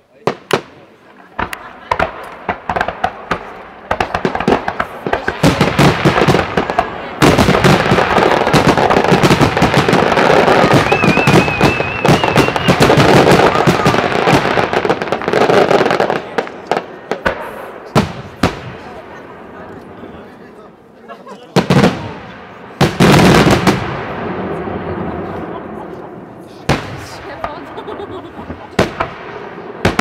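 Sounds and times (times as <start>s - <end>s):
fireworks cracks and bangs: 0.2s - 20.2s, 21.5s - 30.0s
wavering high whistle: 10.8s - 12.9s.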